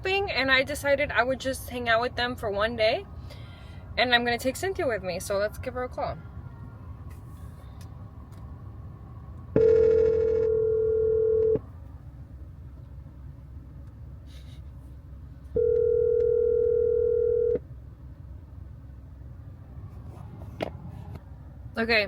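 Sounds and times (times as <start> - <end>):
phone ringback tone: 9.6 - 11.6, 15.6 - 17.6.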